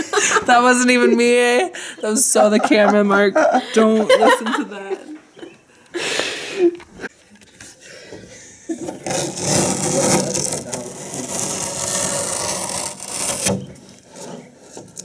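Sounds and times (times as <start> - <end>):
rough rubbing and scraping: 8.8 - 15.0.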